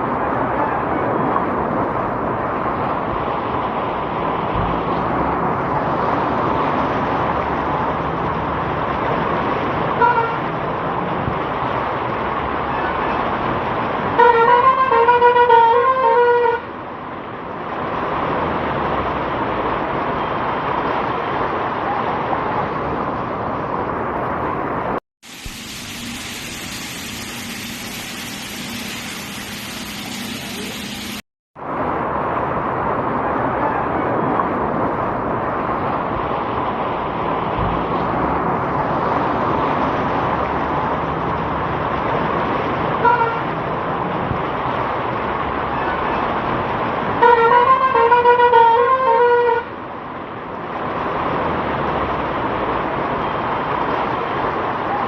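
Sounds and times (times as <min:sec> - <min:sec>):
rushing water on flooded street: 0:00.0 - 0:55.0
wavering vehicle horn: 0:10.0 - 0:10.4, 0:14.2 - 0:16.7, 0:43.0 - 0:43.4, 0:47.2 - 0:49.7
heavy rain: 0:17.8 - 0:47.2
motor vehicle running: 0:25.3 - 0:33.2.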